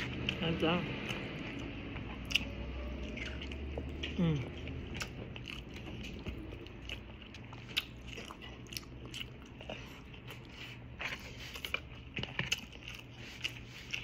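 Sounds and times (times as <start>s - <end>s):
steady low hum: 0.0s - 14.0s
wet mouth clicks and chewing: 0.0s - 14.0s.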